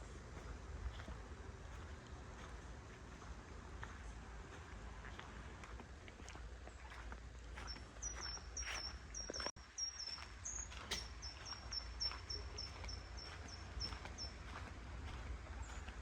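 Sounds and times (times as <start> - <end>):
small bird calling: 7.6 - 14.5
footsteps: 10.1 - 16.0.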